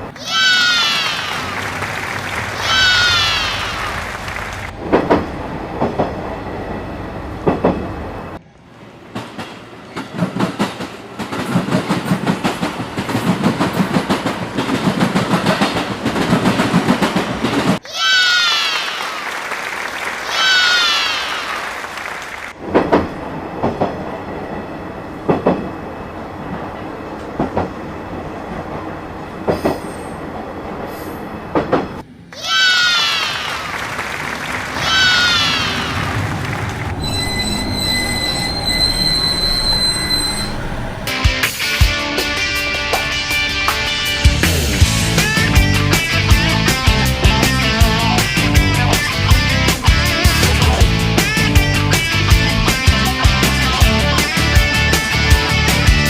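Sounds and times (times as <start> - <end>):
train wheels clacking over joints: 0.0 - 8.4, 9.1 - 17.8, 33.3 - 56.0
short high-pitched falling squeals: 32.4 - 41.9.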